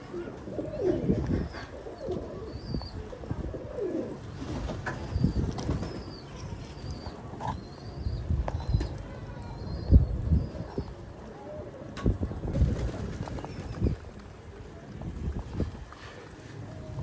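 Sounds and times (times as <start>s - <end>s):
pigeons cooing: 0.0s - 14.0s
wings flapping and scuffling: 0.3s - 7.3s, 12.5s - 14.5s.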